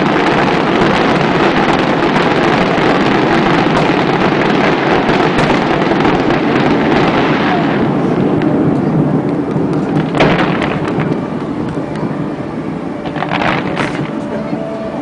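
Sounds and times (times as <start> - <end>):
aerial fireworks bursting: 0.0 - 14.2
fireworks crackling: 0.0 - 14.5.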